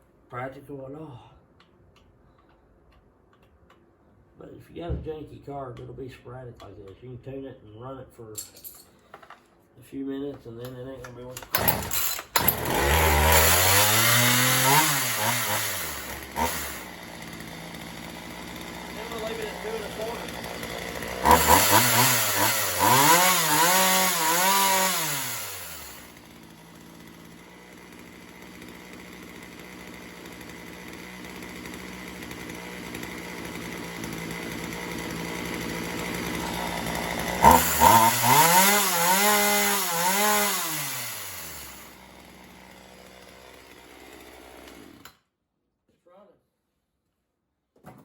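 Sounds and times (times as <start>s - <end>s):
chainsaw revving and idling: 11.4s - 45.2s.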